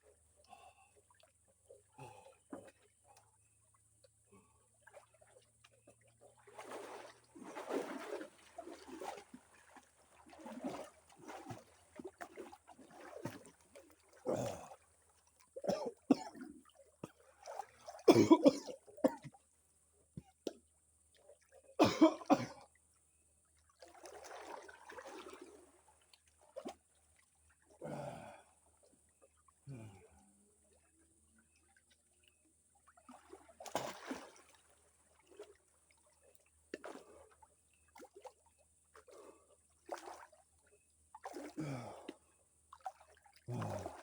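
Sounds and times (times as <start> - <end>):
water splashing: 4.8 - 14.8, 23.8 - 25.7, 33.0 - 36.1, 42.7 - 44.0
person gasping and coughing: 18.1 - 19.2, 21.8 - 22.6.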